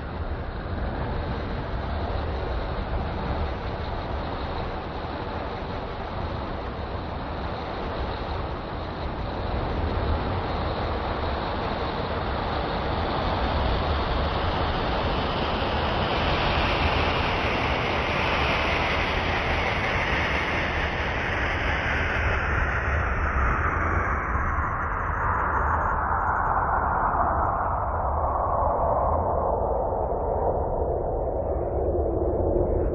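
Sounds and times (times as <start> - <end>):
low rumble: 22.3 - 32.9.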